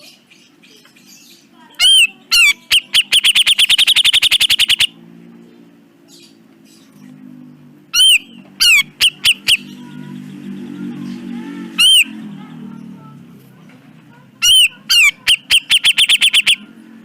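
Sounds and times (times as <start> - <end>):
bird single call notes: 14.4 - 16.6.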